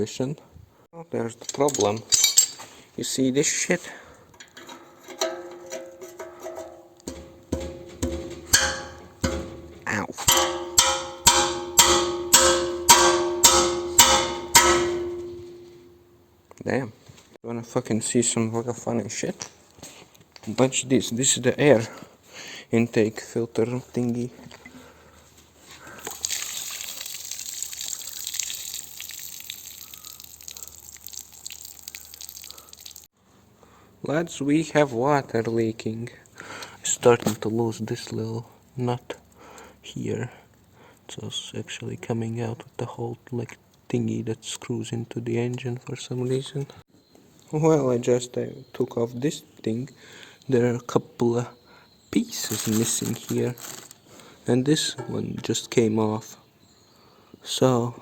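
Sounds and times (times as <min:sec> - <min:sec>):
metal part being struck: 0:04.6 - 0:16.2
water splashing and dripping: 0:26.0 - 0:33.1.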